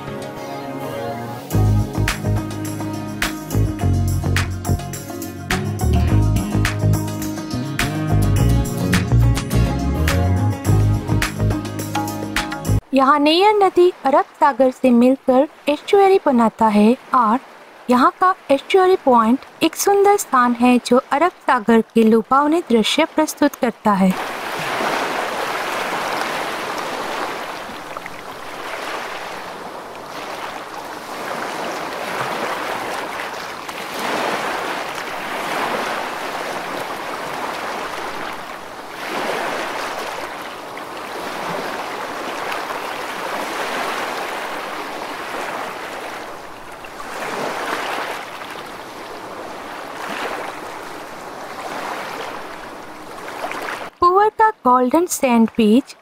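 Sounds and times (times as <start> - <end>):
sea surf washing in: 24.1 - 53.9.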